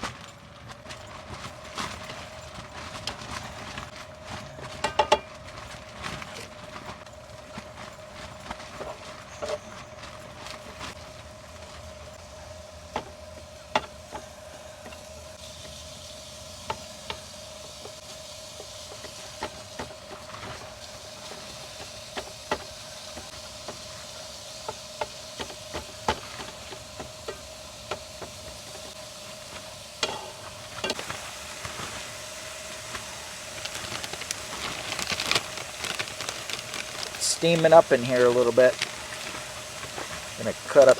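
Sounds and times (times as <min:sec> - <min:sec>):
food sizzling in a frying pan: 0:11.9 - 0:40.9.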